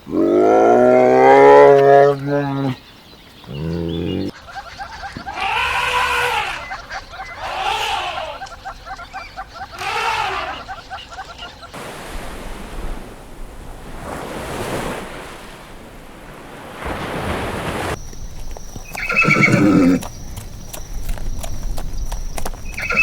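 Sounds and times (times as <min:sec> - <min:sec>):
loud animal call: 0:03.5 - 0:11.8, 0:18.9 - 0:20.1.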